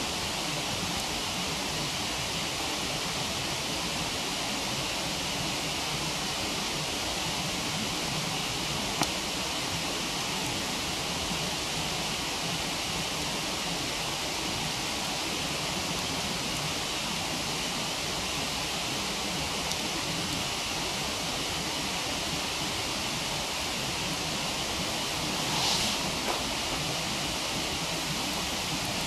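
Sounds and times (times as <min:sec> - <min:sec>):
campfire burning: 0:00.1 - 0:29.0
short loud hiss: 0:25.0 - 0:27.4.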